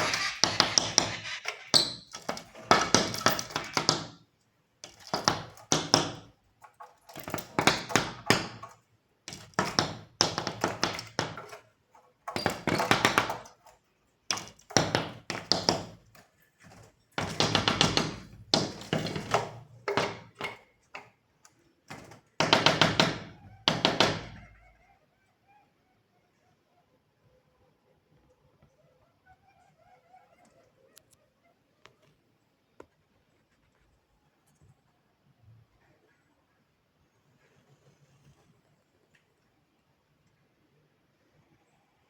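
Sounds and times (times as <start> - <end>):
bird pecking at window glass: 0.0 - 4.2, 4.8 - 24.4.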